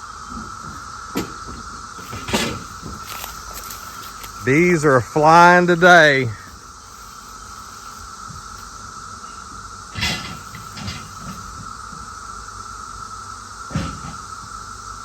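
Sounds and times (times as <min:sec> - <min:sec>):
cicadas droning: 0:00.0 - 0:15.0
knocking and rustling: 0:00.3 - 0:04.4.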